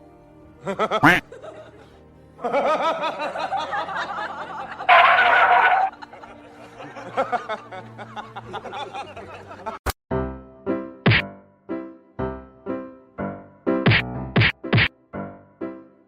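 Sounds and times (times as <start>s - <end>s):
person giggling: 0.7s - 1.4s.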